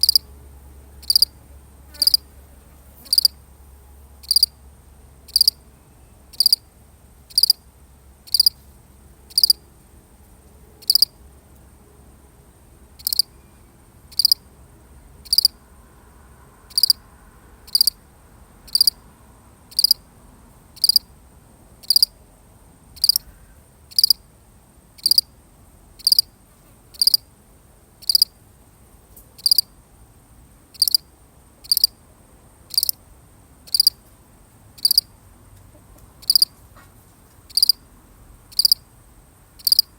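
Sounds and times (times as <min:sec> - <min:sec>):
cricket chirping: 0:00.0 - 0:00.4, 0:01.0 - 0:02.3, 0:03.0 - 0:03.4, 0:04.2 - 0:04.6, 0:05.2 - 0:08.6, 0:09.3 - 0:09.7, 0:10.8 - 0:11.2, 0:13.0 - 0:14.5, 0:15.2 - 0:15.6, 0:16.7 - 0:17.0, 0:17.7 - 0:18.0, 0:18.7 - 0:19.0, 0:19.7 - 0:20.1, 0:20.7 - 0:21.1, 0:21.8 - 0:22.2, 0:22.9 - 0:24.3, 0:24.9 - 0:27.3, 0:28.0 - 0:28.5, 0:29.4 - 0:34.1, 0:34.7 - 0:35.2, 0:36.2 - 0:36.6, 0:37.4 - 0:39.9.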